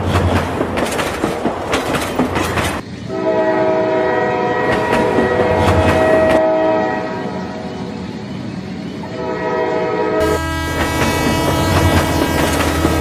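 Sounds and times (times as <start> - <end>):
train wheels clattering: 0.0 - 2.8, 4.6 - 6.4, 10.2 - 13.0
train horn chord: 3.1 - 7.6, 9.0 - 13.0.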